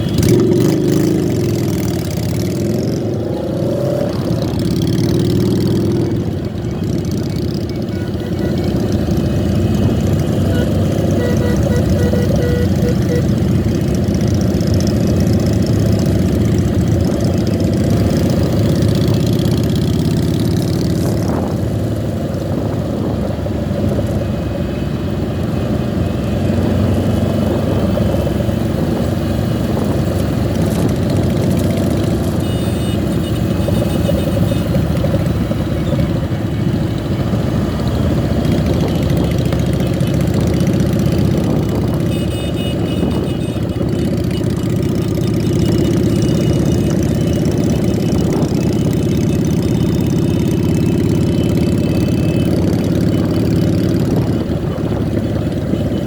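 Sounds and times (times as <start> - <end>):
motorcycle engines revving: 0.0 - 56.0.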